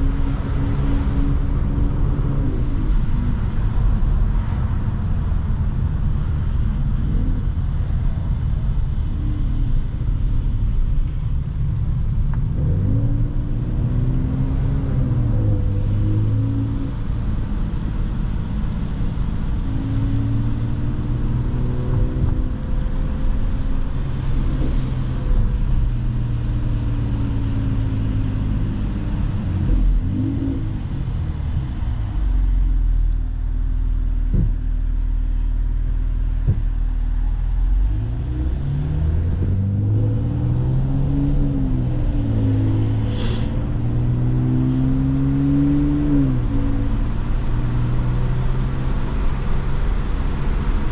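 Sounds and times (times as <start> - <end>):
car engine revving: 36.3 - 50.9.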